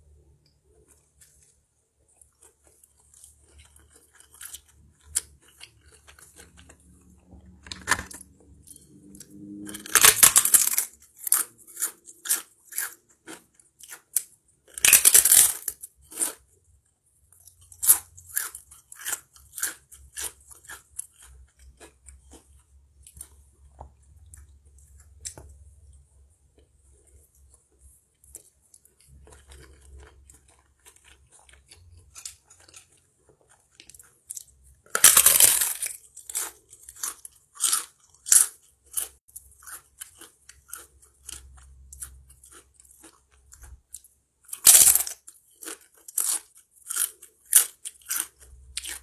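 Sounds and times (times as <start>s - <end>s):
chewing with wet mouth sounds: 0.7s - 7.5s, 17.4s - 34.8s
crisp crunching bites: 9.6s - 16.4s, 33.9s - 41.4s, 44.5s - 49.0s.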